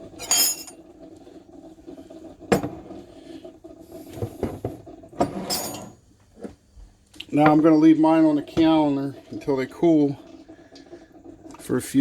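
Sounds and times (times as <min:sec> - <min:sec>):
glass jars knocking on counter: 0:00.2 - 0:00.7.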